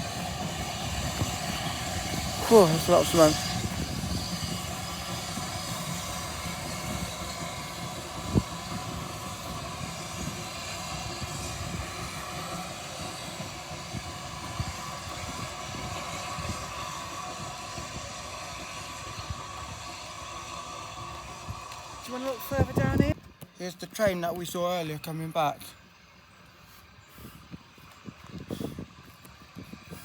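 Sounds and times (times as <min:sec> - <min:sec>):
steam train rumble and hiss: 0:00.0 - 0:23.2.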